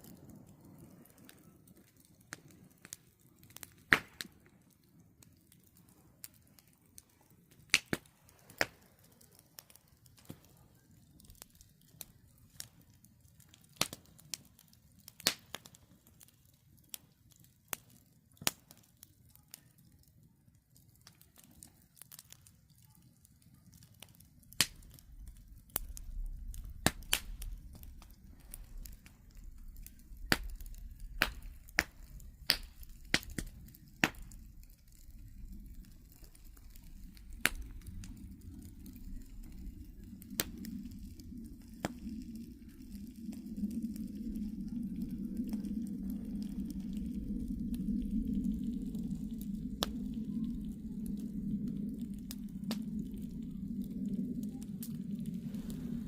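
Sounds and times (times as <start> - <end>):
campfire crackling and popping: 0.0 - 56.0
low rumble: 24.7 - 56.0.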